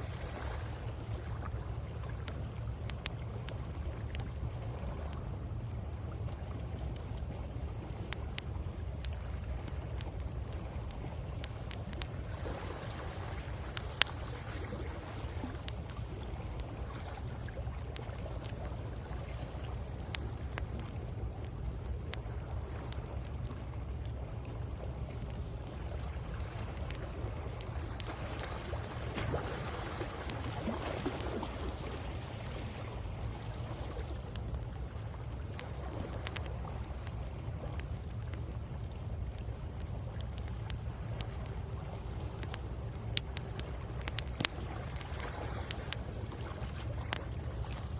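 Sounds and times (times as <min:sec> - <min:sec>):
sea waves on shore: 0:00.0 - 0:47.9
wood fire crackling: 0:00.6 - 0:47.9.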